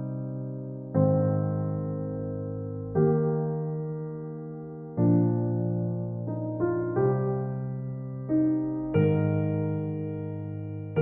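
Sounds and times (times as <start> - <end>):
soft piano chords: 0.0 - 11.0.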